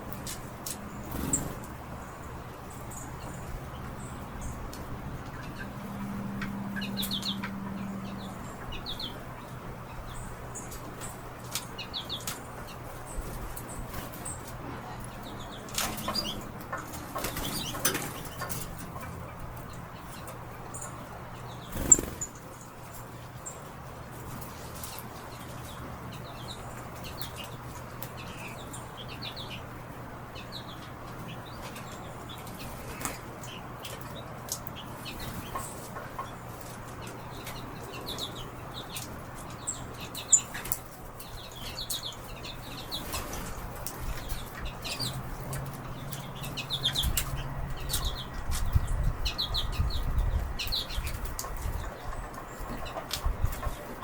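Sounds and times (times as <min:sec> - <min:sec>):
small birds chirping: 0:00.0 - 0:54.0
wing flutters: 0:01.0 - 0:01.7, 0:21.6 - 0:22.4.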